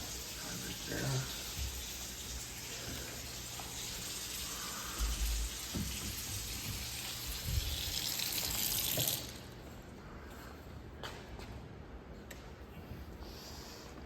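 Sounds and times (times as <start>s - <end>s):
faucet water running: 0.0s - 9.6s.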